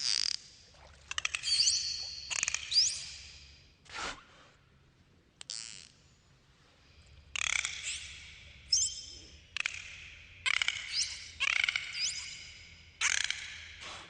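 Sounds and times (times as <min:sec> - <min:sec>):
dolphin squawks and clicks: 0:07.4 - 0:09.0, 0:09.6 - 0:13.7.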